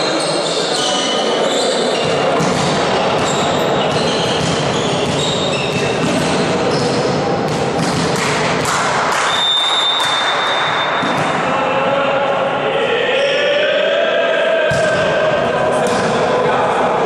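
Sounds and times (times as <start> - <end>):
shoe squeaks: 0.0 - 7.1, 9.3 - 11.1
din of players and spectators: 0.0 - 17.0.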